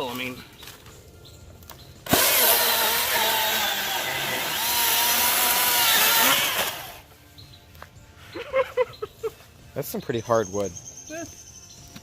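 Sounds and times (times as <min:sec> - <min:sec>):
electric chainsaw cutting log: 0:02.0 - 0:07.1.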